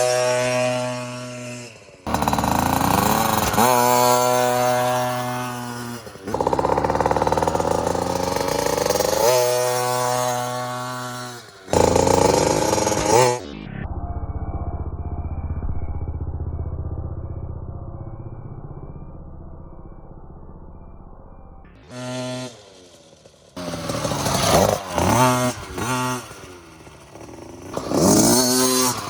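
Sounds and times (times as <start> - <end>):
dirt bike engine revving: 0.0 - 13.8, 21.7 - 29.0.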